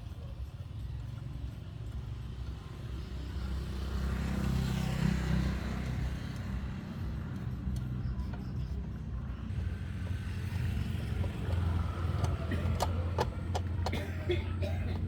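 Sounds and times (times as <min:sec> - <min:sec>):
engine humming: 0:04.2 - 0:15.0.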